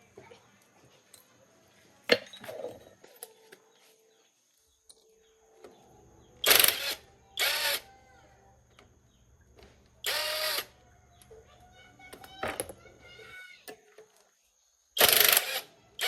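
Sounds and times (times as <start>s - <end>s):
handheld power tool running: 6.4s - 7.8s, 10.0s - 10.7s, 15.0s - 15.7s.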